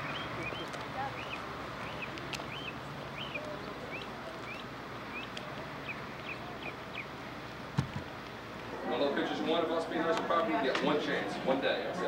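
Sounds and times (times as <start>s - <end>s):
bird chirping: 0.0s - 7.2s.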